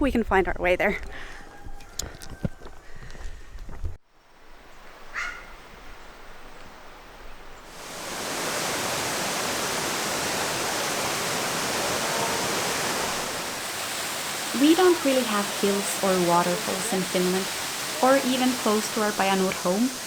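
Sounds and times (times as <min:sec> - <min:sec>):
outdoor ambience: 0:00.0 - 0:20.0
waterfall rushing: 0:07.7 - 0:20.0.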